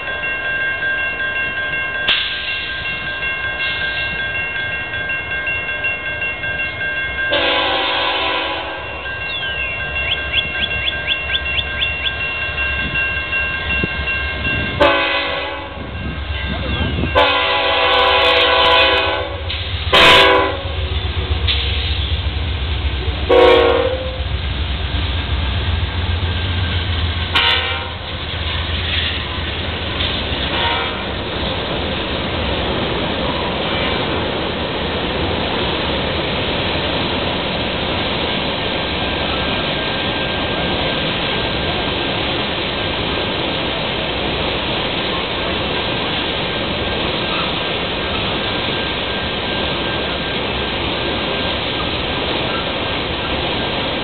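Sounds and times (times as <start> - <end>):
train cars rolling on rails: 0.0 - 54.0
train air horn blasts: 7.3 - 8.9, 14.8 - 15.9, 17.1 - 20.8, 23.3 - 24.2, 27.3 - 28.0, 30.5 - 31.1
low engine rumble: 19.3 - 46.0.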